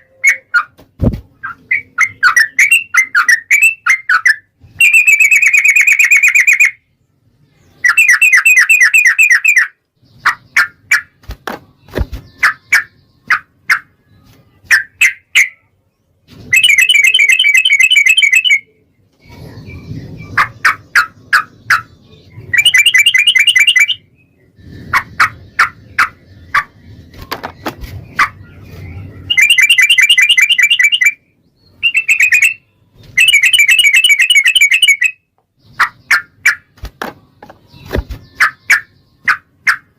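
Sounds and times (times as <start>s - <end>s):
bird singing high trills: 1.4s - 7.0s, 7.6s - 10.6s, 16.5s - 18.8s, 19.4s - 26.6s, 28.4s - 36.2s.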